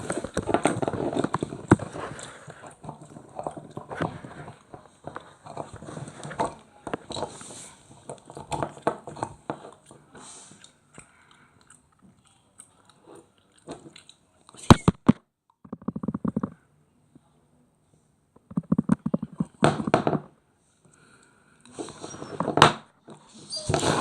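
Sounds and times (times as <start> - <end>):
puppy chewing and biting: 0.0 - 14.2.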